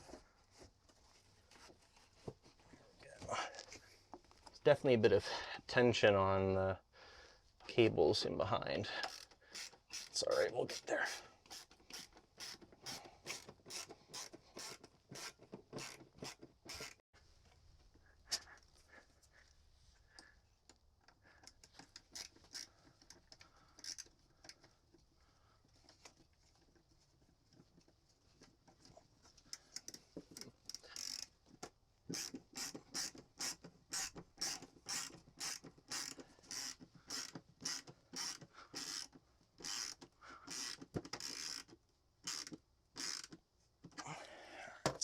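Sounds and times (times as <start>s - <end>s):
hand tool ratcheting: 9.0s - 17.0s, 21.4s - 24.6s, 29.5s - 31.4s, 32.1s - 43.4s.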